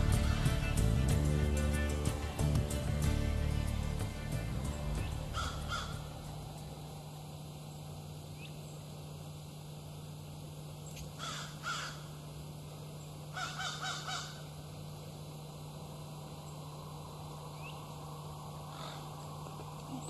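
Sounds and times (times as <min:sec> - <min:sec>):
harsh bird calls: 0:04.6 - 0:06.7, 0:10.8 - 0:14.6, 0:16.4 - 0:20.0.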